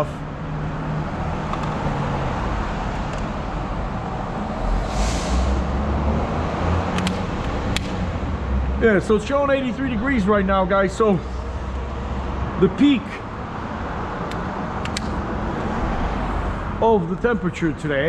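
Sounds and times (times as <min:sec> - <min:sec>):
street traffic noise: 0:00.0 - 0:18.0
vehicle engine rumble: 0:00.0 - 0:18.0
short hiss: 0:04.8 - 0:05.6.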